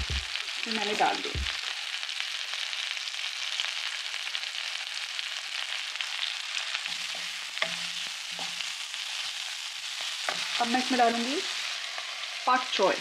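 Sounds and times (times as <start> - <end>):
oil sizzling in a pan: 0.0 - 13.0.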